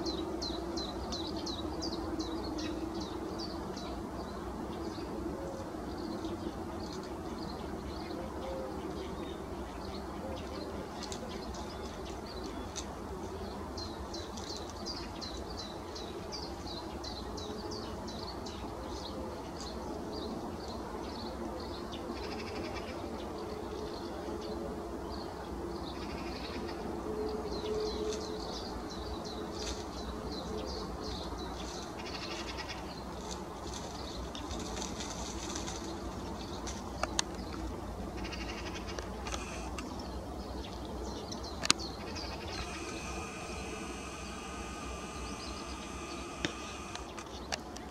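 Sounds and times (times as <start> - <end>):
birds chirping: 0.0 - 47.9
steady low hum: 0.0 - 47.9
harsh rasping bird calls: 31.6 - 33.1, 38.1 - 40.0, 41.4 - 47.7.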